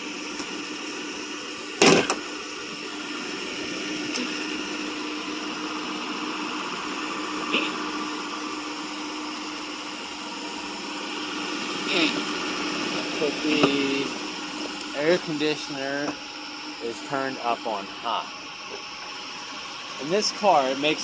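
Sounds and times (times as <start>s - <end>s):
air conditioning whirring hum: 0.0s - 21.0s.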